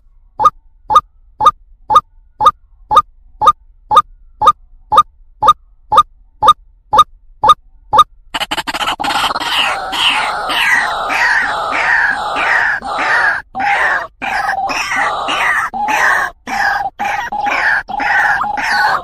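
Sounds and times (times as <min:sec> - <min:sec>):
bird harsh repeated croaking: 0:08.3 - 0:19.0.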